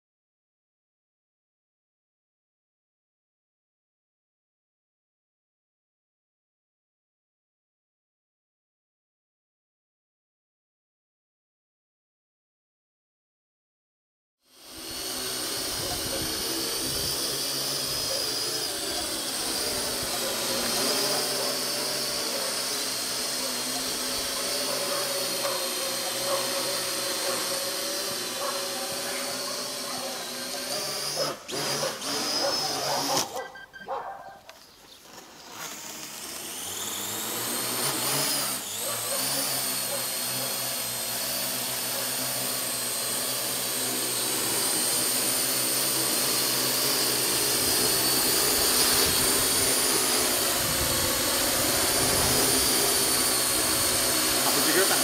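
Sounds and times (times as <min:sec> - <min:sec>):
quadcopter propellers whining: 0:14.4 - 0:55.0.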